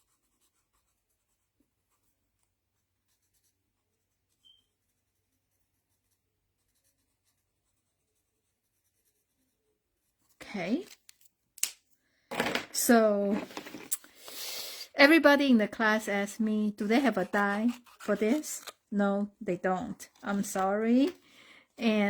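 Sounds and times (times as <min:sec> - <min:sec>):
marker scratching on cardstock: 0:00.0 - 0:11.0, 0:16.4 - 0:18.8.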